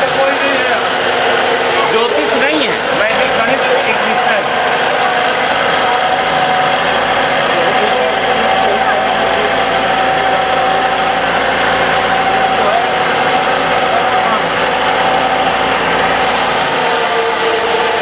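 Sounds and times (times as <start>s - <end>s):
harsh high hiss: 0.0s - 3.0s
wood lathe motor hum: 0.0s - 18.0s.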